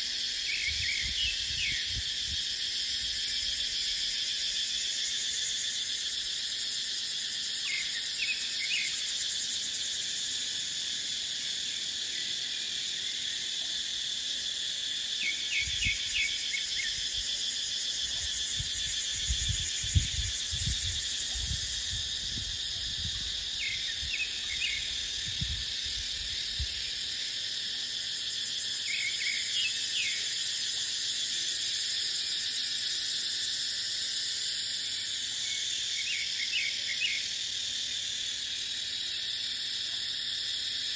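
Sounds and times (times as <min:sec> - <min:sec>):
cicadas chorus: 0:00.0 - 0:40.9
wind rumbling on microphone: 0:00.7 - 0:02.4, 0:18.5 - 0:26.8.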